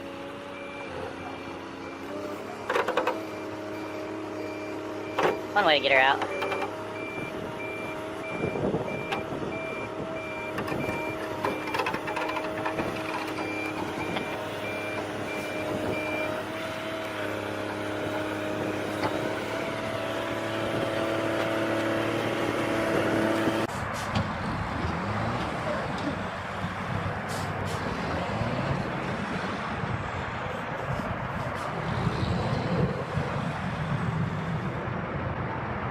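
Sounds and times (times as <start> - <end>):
truck reversing alarm beeping: 0.0 - 17.2
heavy truck engine running: 0.0 - 35.9
rough noisy engine: 0.0 - 35.9.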